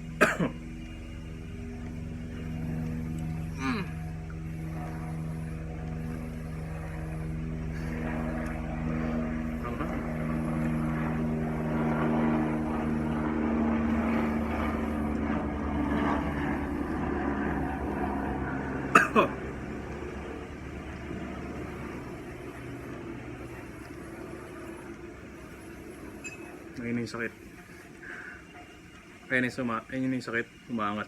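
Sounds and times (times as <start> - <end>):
motor engine droning: 0.0 - 31.0.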